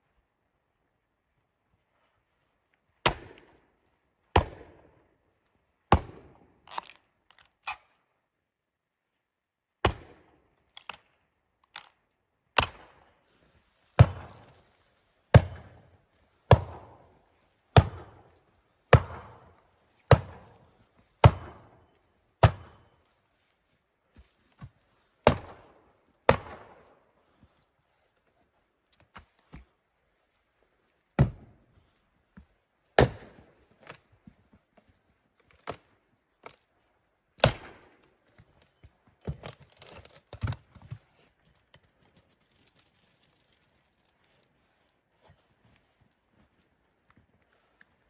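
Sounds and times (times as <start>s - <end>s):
wood being chopped: 3.0s - 3.5s, 4.3s - 4.8s, 5.9s - 7.0s, 9.8s - 10.2s, 12.6s - 12.9s, 13.9s - 14.6s, 15.3s - 15.9s, 16.5s - 17.1s, 17.7s - 21.7s, 22.4s - 22.9s, 24.1s - 25.7s, 26.3s - 26.8s, 31.2s - 31.5s, 32.4s - 34.0s, 35.6s - 35.8s, 37.4s - 38.4s, 39.2s - 41.0s.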